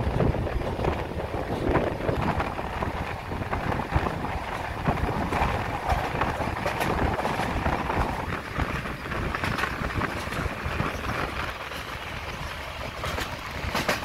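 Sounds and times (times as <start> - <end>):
rail clicks: 0.0 - 14.0
train wheels rumbling on rails: 0.0 - 14.0
wind rushing past window: 0.0 - 14.0.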